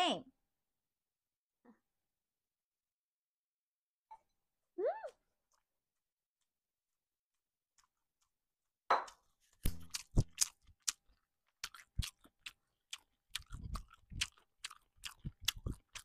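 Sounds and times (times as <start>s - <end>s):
person chewing food: 5.1s - 16.0s.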